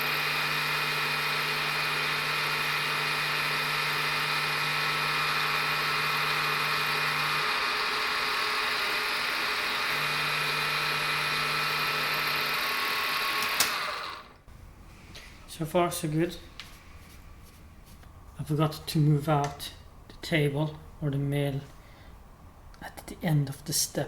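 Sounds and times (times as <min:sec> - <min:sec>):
milling machine cutting metal: 0:00.0 - 0:14.4.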